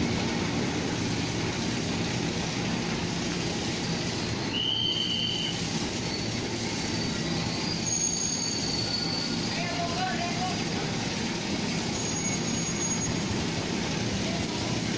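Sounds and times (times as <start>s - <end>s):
train rumble: 0.0s - 14.9s
high-pitched wheel squeal: 4.2s - 10.0s, 11.7s - 13.6s.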